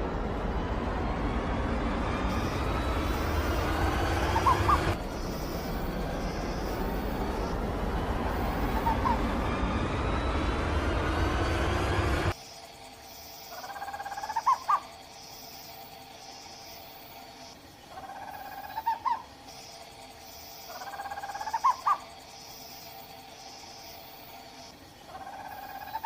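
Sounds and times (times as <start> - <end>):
owl trilling call: 4.2 - 5.5, 8.7 - 9.2, 13.6 - 14.9, 20.7 - 22.1.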